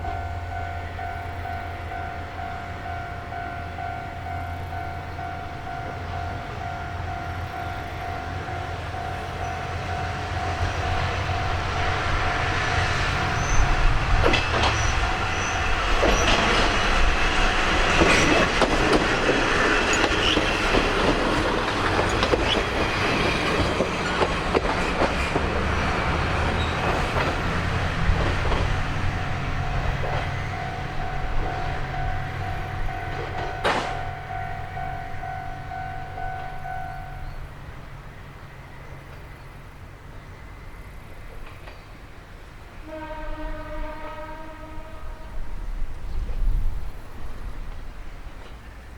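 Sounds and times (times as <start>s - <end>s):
steady high tone: 0.0s - 18.0s, 28.8s - 37.5s
railcar engine rumble: 0.0s - 48.9s
wheels clicking over rail joints: 13.1s - 37.0s
wheel squeal: 13.3s - 16.8s, 22.1s - 24.2s, 26.4s - 27.3s.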